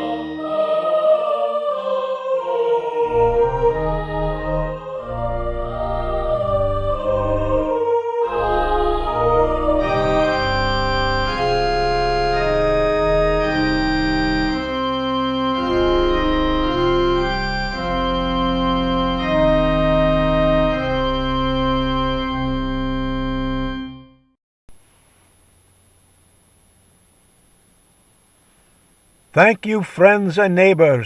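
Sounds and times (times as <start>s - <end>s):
organ playing slow chords: 0.0s - 24.2s.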